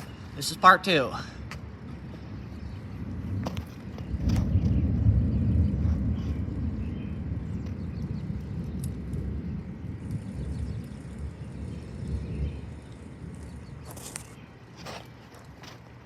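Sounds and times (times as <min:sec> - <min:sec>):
thunder rumbling: 0:01.7 - 0:13.9.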